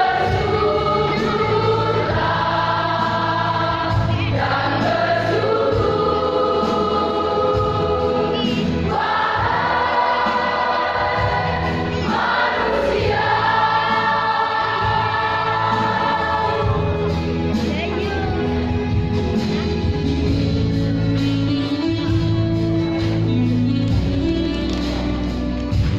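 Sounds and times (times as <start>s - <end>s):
church choir singing in harmony: 0.0s - 17.7s.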